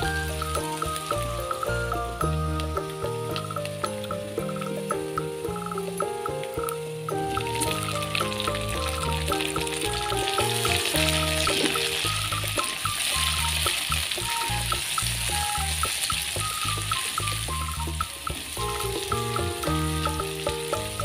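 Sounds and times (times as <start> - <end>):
background music with bass line: 0.0 - 21.0
food sizzling in frying pan: 0.0 - 21.0.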